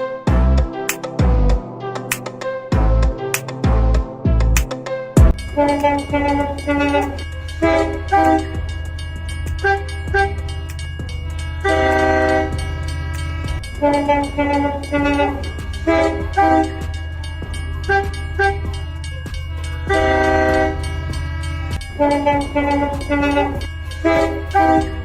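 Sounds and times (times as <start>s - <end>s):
toy train horn toots: 5.4s - 10.9s, 11.5s - 17.0s, 17.8s - 25.0s.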